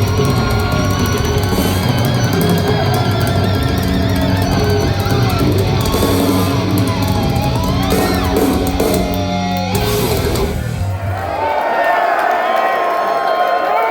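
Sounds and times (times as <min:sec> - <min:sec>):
low held guitar notes: 0:00.0 - 0:10.9
thrash metal band playing: 0:00.0 - 0:11.1.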